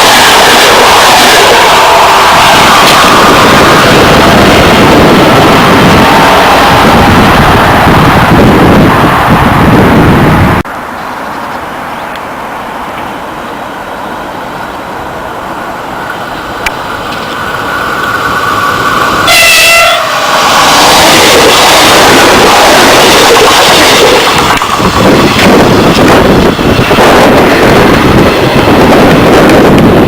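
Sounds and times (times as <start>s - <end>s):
train rushing past: 0.0s - 30.0s
train horn: 19.2s - 21.2s.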